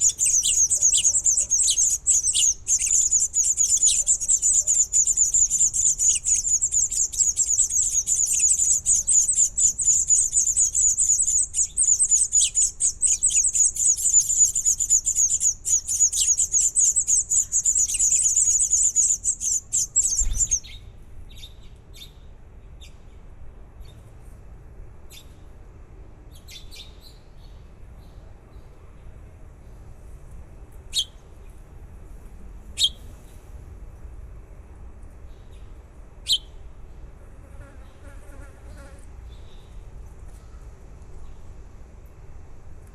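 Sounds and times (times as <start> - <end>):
faint peeps: 0.0 - 20.6
baby birds chirping: 0.0 - 20.7.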